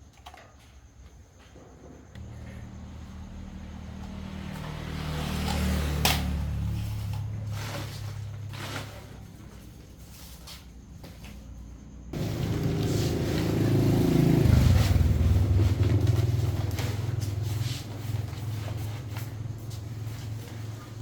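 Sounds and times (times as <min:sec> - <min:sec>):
small engine running: 0:02.2 - 0:08.9, 0:12.2 - 0:21.0.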